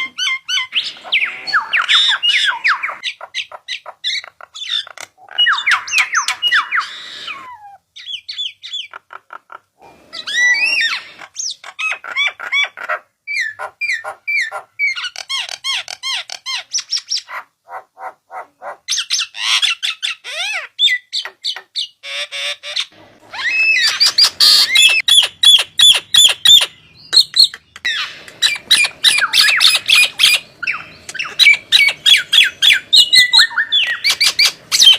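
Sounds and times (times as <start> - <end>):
starling squawks and whistles: 27.9 - 34.9.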